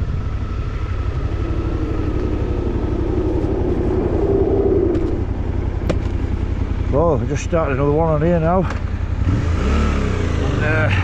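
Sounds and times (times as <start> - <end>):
wind rumble on microphone: 0.0 - 6.4
motorcycle engine running: 0.0 - 11.0.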